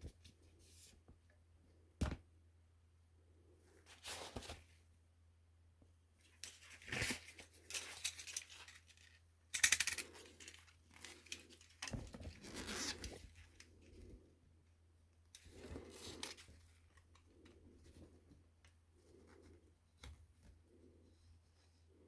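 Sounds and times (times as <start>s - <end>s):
scraping and rustling handling: 6.2s - 14.1s.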